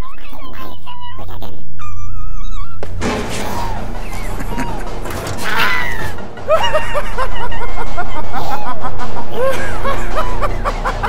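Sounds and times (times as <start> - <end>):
background music with bass: 2.8 - 11.0.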